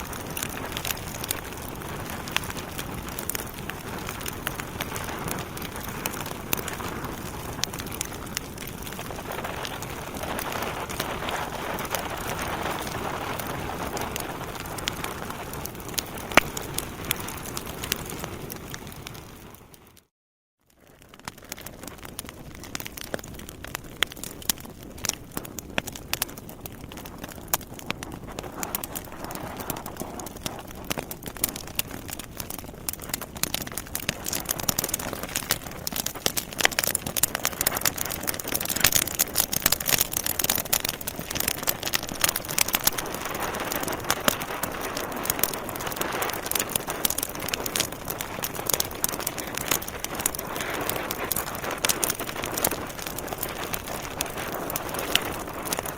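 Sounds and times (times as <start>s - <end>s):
wood fire crackling and popping: 0.0s - 20.1s, 20.8s - 55.9s
steady fire hiss: 38.7s - 55.9s.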